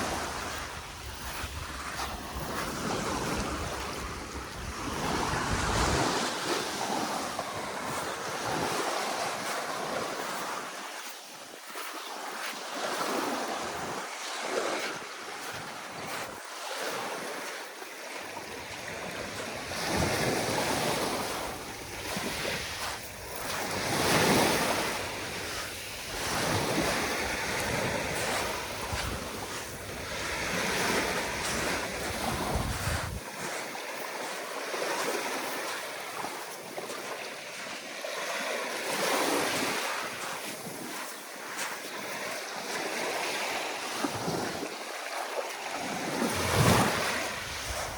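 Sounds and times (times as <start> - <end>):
wind buffeting microphone: 0.0 - 8.8, 18.7 - 33.5, 45.8 - 47.9
waves washing onto beach: 0.0 - 47.9.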